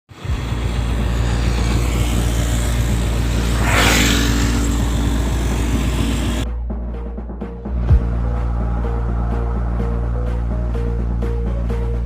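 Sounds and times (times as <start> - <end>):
motorcycle engine running: 0.1 - 6.4
rush of noise: 0.1 - 6.4.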